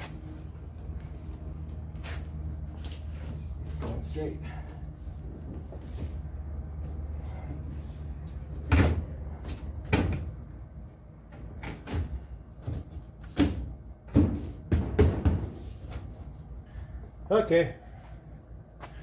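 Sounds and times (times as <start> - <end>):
sharp knocks and clunks: 11.3 - 15.7.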